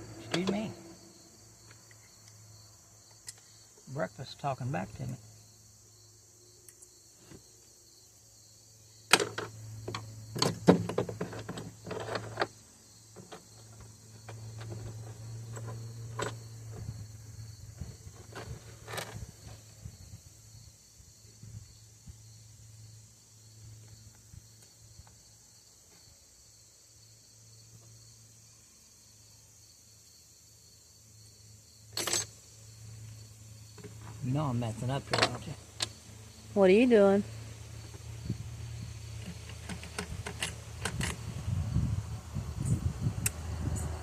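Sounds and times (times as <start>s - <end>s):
clatter of parts being handled: 9.1s - 12.6s, 31.9s - 32.4s, 39.2s - 41.2s.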